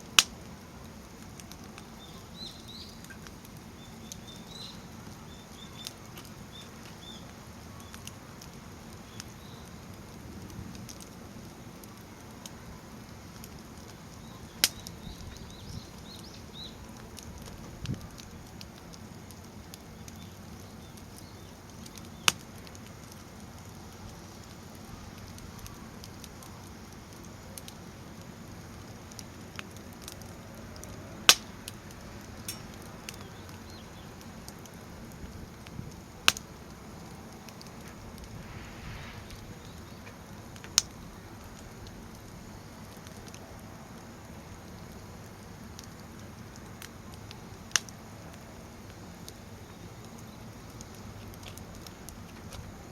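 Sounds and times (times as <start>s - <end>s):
small ticks: 1.2s - 11.2s, 13.2s - 38.6s, 40.6s - 52.7s
flames rushing: 5.8s - 48.0s.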